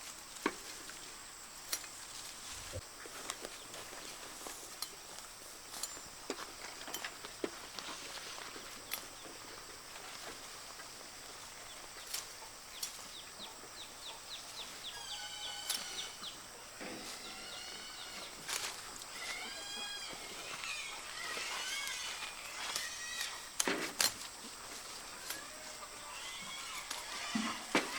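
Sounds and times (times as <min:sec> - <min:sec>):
outdoor background hiss: 0:00.0 - 0:27.9
poultry chirping: 0:07.9 - 0:23.6, 0:24.3 - 0:27.9.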